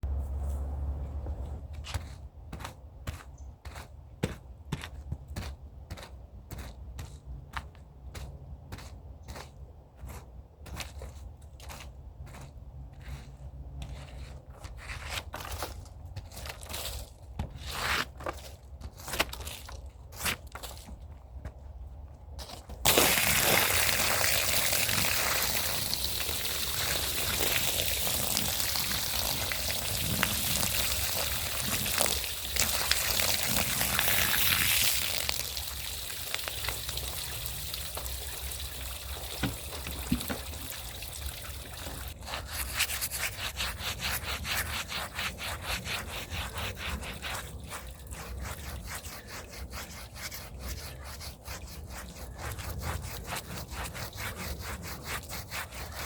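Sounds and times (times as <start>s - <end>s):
scrub brush on rug: 22.9s - 38.1s, 41.8s - 56.0s.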